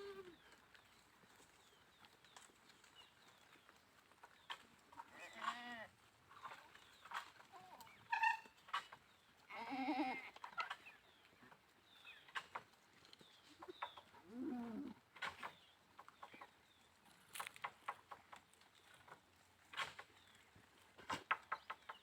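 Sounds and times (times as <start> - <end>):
goats bleating: 5.1 - 5.9, 9.5 - 10.4.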